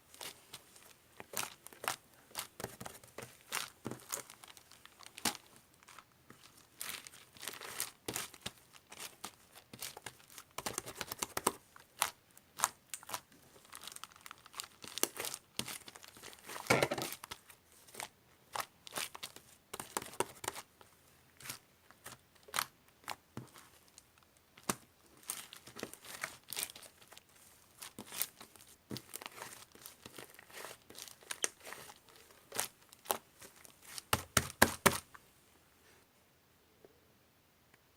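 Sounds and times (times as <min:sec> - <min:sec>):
slime crackling and popping: 0:03.5 - 0:09.1, 0:24.6 - 0:35.0
slime squelch: 0:21.4 - 0:35.1.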